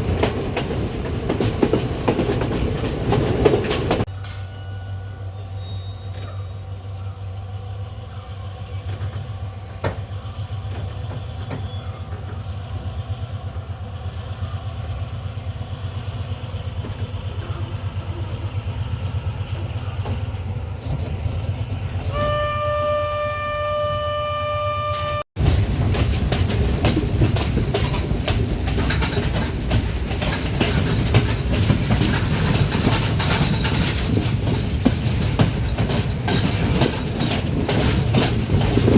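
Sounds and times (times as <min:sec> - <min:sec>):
train rumble and wheel clatter: 0:00.0 - 0:38.9
train horn blast: 0:22.1 - 0:25.3.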